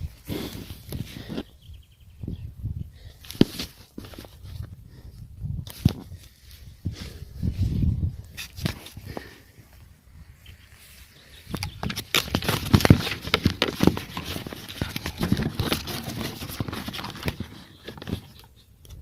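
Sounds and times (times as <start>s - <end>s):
squelching and knocking in mud: 11.6s - 18.5s.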